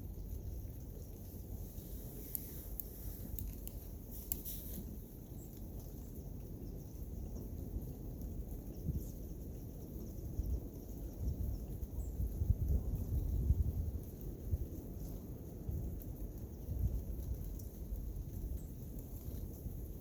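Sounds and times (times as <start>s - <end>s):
faint sharp crackles: 0.8s - 5.7s
wind buffeting microphone: 10.0s - 20.0s.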